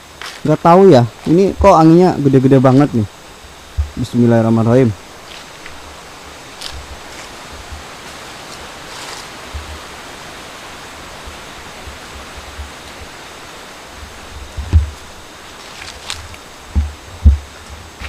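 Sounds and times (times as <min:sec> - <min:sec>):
wind blowing through trees: 0:00.0 - 0:18.0
wind buffeting microphone: 0:01.0 - 0:18.0
heavy low thump: 0:03.7 - 0:04.0, 0:14.5 - 0:15.1, 0:16.7 - 0:17.8.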